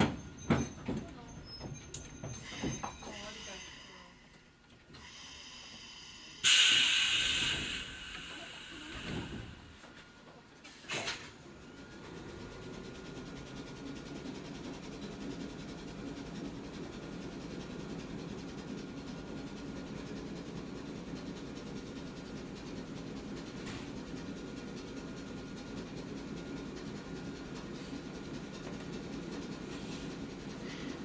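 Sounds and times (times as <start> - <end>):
short burst of air: 6.4 - 9.6
electric train running hum: 11.5 - 31.0.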